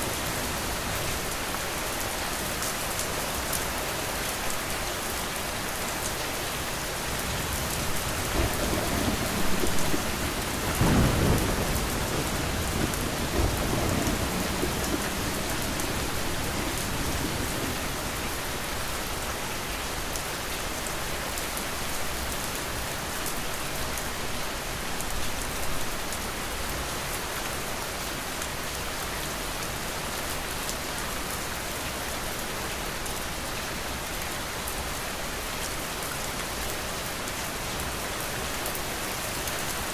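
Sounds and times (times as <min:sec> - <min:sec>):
heavy rain pattering: 0:00.0 - 0:39.9
thunder rumbling: 0:07.8 - 0:18.4.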